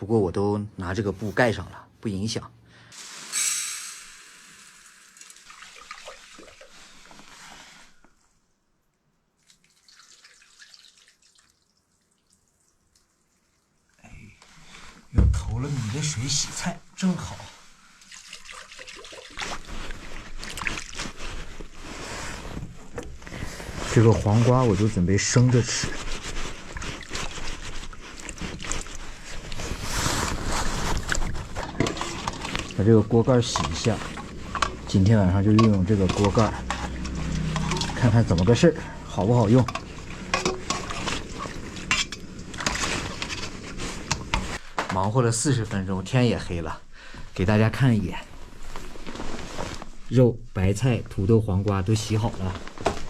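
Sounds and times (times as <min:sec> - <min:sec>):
water sloshing in a pot: 0:04.2 - 0:08.4, 0:09.3 - 0:16.4, 0:17.8 - 0:44.7.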